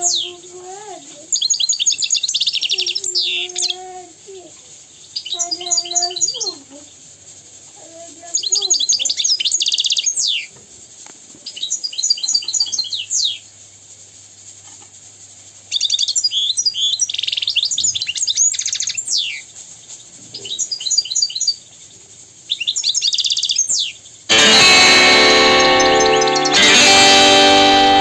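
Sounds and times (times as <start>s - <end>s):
goldfinch chirps and trills: 0.0s - 0.4s, 1.3s - 4.0s, 5.0s - 6.6s, 8.2s - 10.5s, 15.7s - 19.4s, 20.4s - 21.6s, 22.5s - 24.0s, 25.4s - 27.2s
music: 24.3s - 28.0s.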